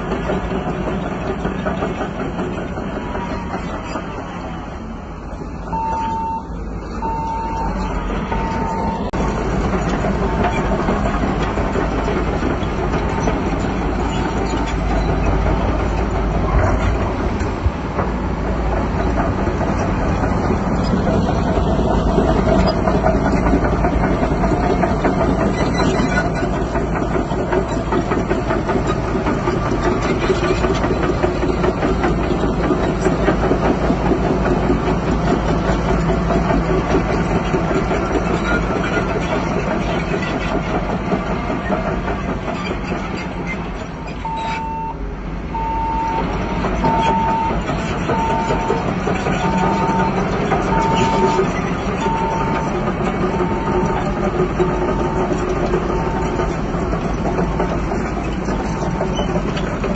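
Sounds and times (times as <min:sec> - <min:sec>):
diesel engine running with clatter: 0:00.0 - 0:59.9
reversing alarm beeping: 0:05.7 - 0:09.2, 0:44.1 - 0:54.3, 0:56.0 - 0:56.5.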